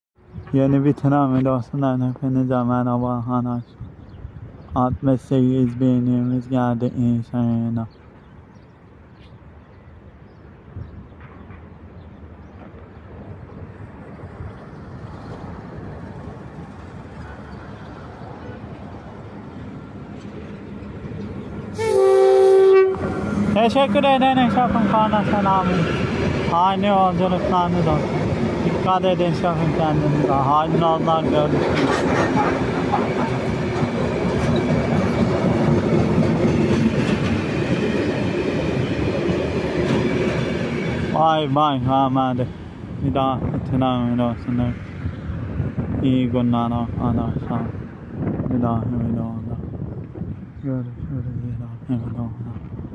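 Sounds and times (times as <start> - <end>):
train rumble: 10.6 - 52.9
wheels clicking over rail joints: 25.9 - 41.0.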